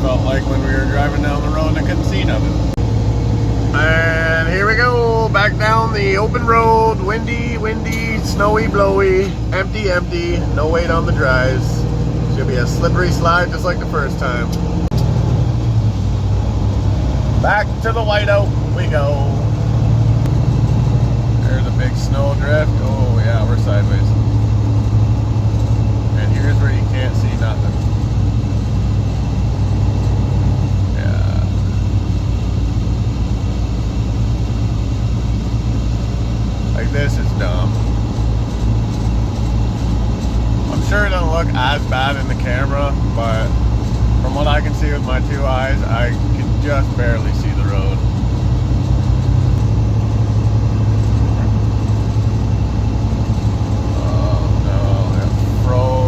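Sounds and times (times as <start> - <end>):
truck diesel engine drone: 0.0 - 56.0
wind and tyre noise: 0.0 - 56.0.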